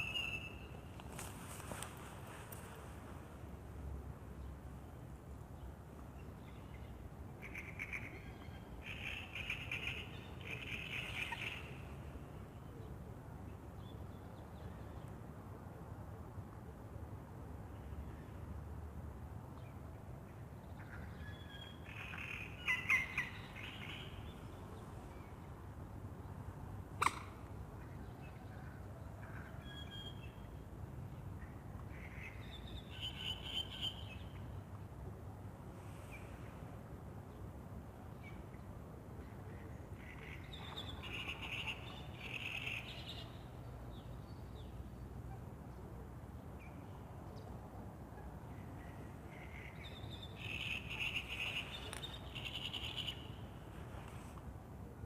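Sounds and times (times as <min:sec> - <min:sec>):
songbirds chirping and trilling: 0:06.3 - 0:13.0, 0:20.6 - 0:25.6
sharp single click: 0:27.0 - 0:27.3.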